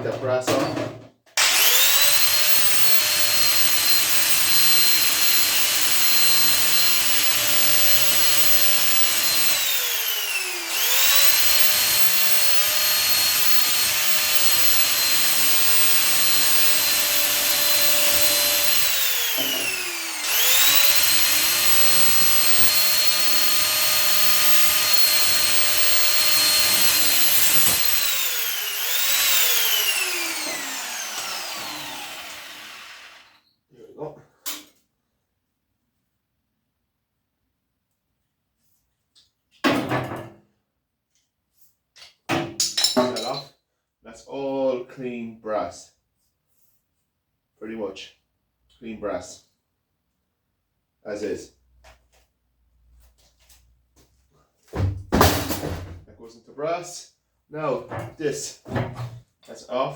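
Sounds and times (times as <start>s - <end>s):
angle grinder cutting metal: 1.4s - 33.4s.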